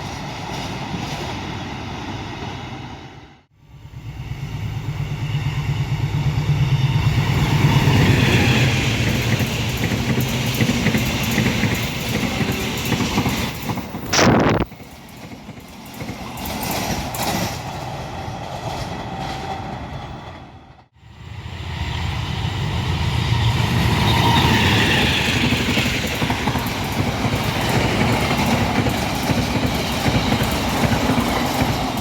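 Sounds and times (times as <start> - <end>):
train wheels clattering over rails: 6.5 - 14.1, 14.7 - 20.1, 23.6 - 32.0.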